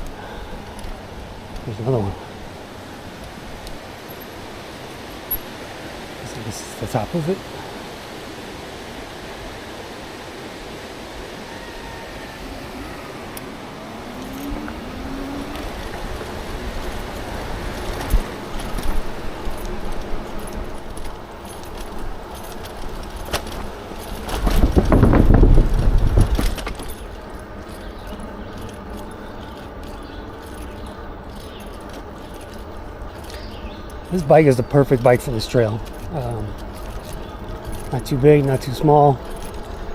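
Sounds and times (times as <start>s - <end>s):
e-bike rattling over rough path: 0.0s - 8.0s, 10.4s - 39.9s
wind rushing on microphone: 0.0s - 29.4s.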